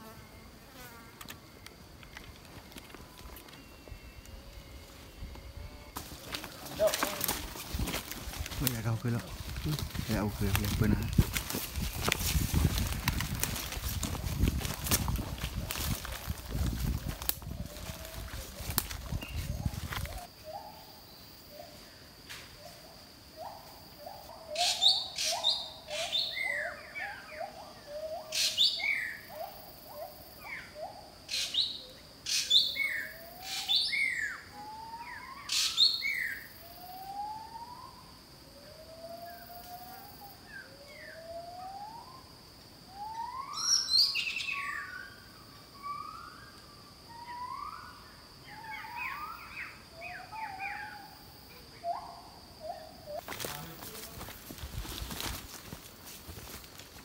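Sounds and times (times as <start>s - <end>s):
high-pitched insect drone: 0.0s - 20.4s
forest birds calling: 2.9s - 38.1s, 42.9s - 57.0s.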